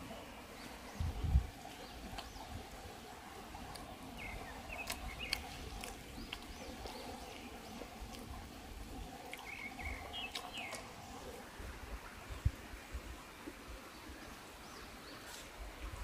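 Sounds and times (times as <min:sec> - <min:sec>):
birds chirping: 0:00.0 - 0:11.4.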